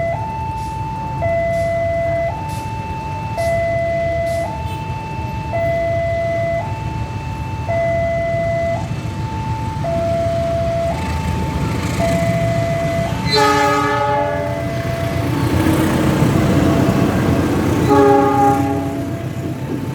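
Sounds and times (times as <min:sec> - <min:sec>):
level crossing alarm two-tone: 0:00.0 - 0:19.4
train horn: 0:13.2 - 0:14.9, 0:17.8 - 0:19.4.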